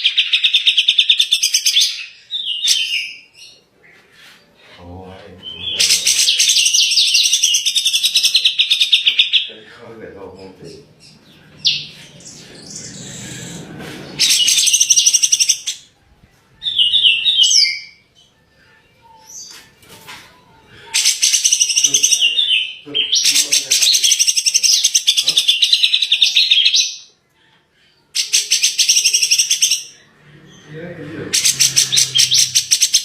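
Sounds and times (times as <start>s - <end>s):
bird chattering song: 5.4s - 15.9s, 20.9s - 27.1s, 28.0s - 33.0s.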